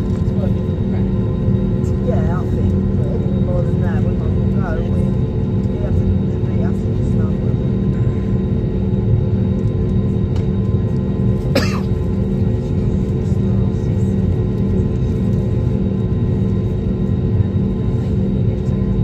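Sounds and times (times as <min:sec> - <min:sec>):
airliner engines droning in cabin: 0:00.0 - 0:19.0.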